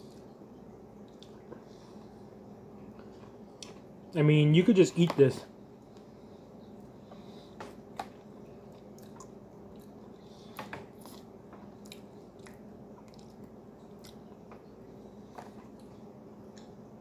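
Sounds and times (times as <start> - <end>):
steady low hum: 0.0 - 17.0
person chewing: 8.7 - 10.0, 10.9 - 14.4.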